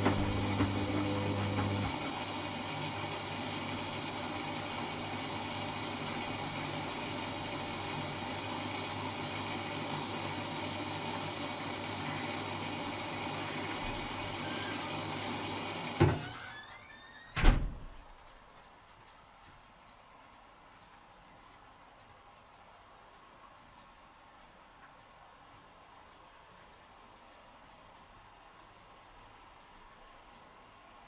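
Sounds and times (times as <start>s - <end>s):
washing machine clunk: 0.0s - 2.1s, 15.9s - 16.4s, 17.4s - 18.1s
washing machine water filling: 0.0s - 16.4s.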